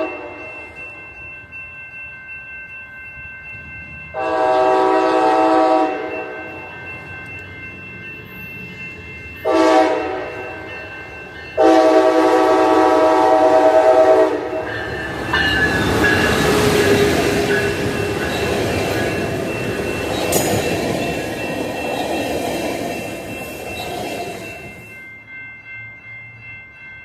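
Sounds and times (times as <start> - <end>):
train horn blasts: 0.0 - 0.5, 4.2 - 6.3, 9.4 - 10.4, 11.6 - 14.6
train wheels rushing on rails: 4.1 - 25.1.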